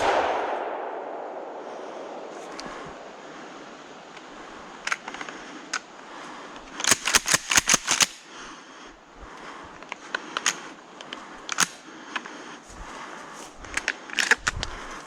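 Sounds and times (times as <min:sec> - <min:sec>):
sharp clicks: 0:00.0 - 0:03.1, 0:06.6 - 0:08.2.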